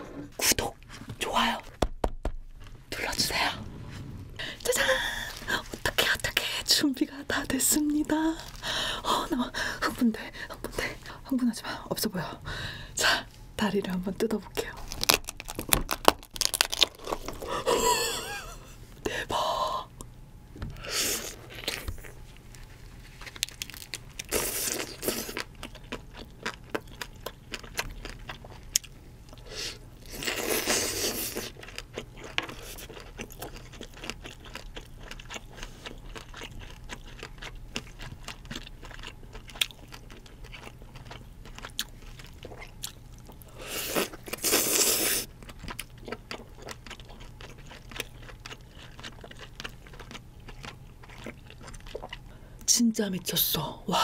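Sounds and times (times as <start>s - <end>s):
rushes of noise: 3.2s - 5.5s
wet chewing and lip smacks: 31.4s - 52.3s.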